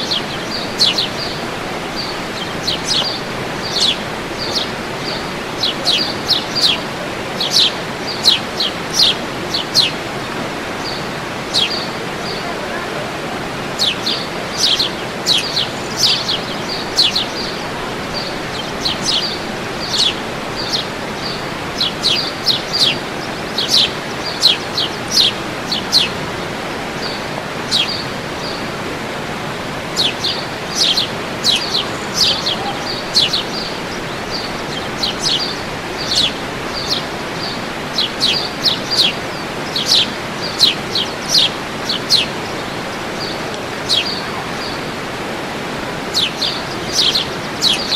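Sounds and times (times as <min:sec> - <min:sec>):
bird chirping: 0:00.0 - 0:13.1, 0:13.7 - 0:26.2, 0:27.0 - 0:28.6, 0:29.9 - 0:45.0, 0:46.0 - 0:47.9
waterfall rushing: 0:00.0 - 0:47.9.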